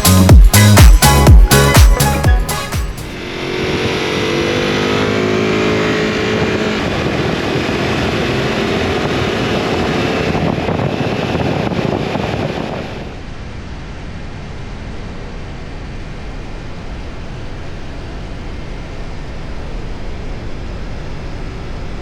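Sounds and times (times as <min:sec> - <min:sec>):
motorcycle engine running: 0:00.0 - 0:04.4
rushing wind noise: 0:05.6 - 0:22.0.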